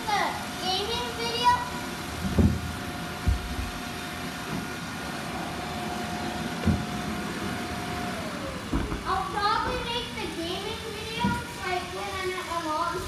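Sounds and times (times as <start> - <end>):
low thumps: 2.2 - 3.8
robot vacuum motor whine: 4.9 - 10.3.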